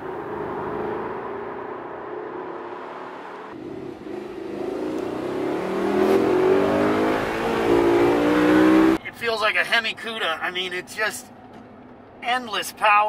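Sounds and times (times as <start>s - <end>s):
car engine accelerating hard: 0.0s - 9.0s.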